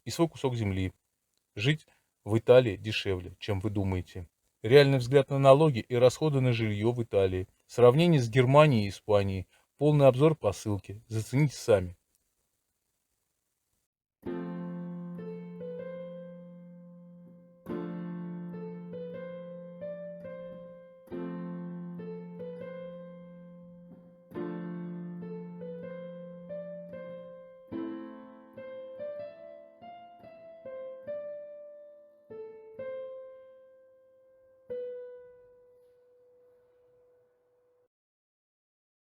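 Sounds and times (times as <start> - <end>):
solo piano music: 14.2 - 37.0.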